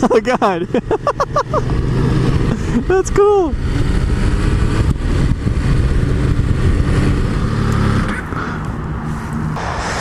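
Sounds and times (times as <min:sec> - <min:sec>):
wind noise: 0:02.1 - 0:08.2.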